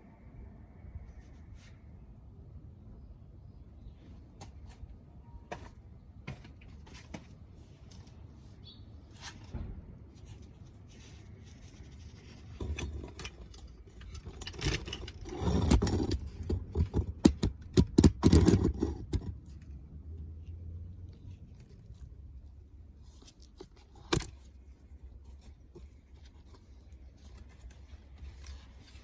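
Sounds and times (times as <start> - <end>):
tools clicking knocking and scraping: 11.8 - 19.6, 23.3 - 24.5.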